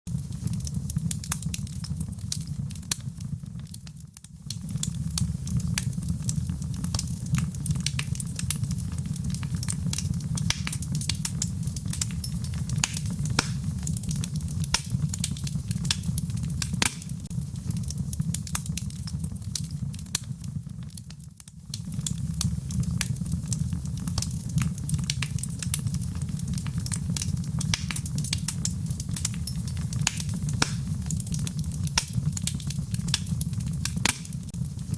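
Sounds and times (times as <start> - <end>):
bonfire flame rumble: 0.1 - 34.9
fire crackling and popping: 0.1 - 34.9.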